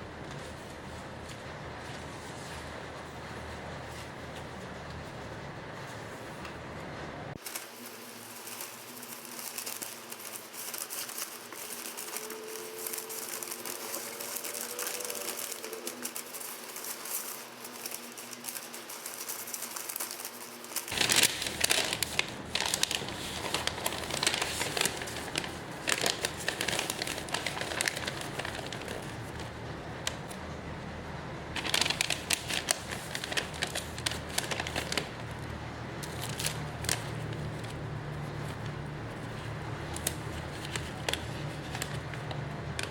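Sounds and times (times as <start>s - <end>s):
plastic packaging crinkling: 7.4s - 30.4s, 31.6s - 42.9s.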